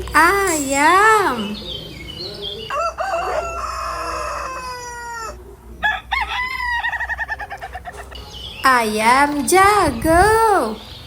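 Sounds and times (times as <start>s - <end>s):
rooster crowing: 2.7s - 8.1s.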